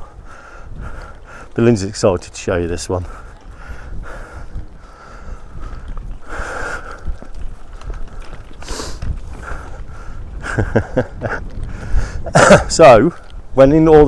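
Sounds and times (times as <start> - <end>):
wind rumbling on microphone: 0.0 - 14.0
sharp breaths or sniffs: 8.6 - 10.2.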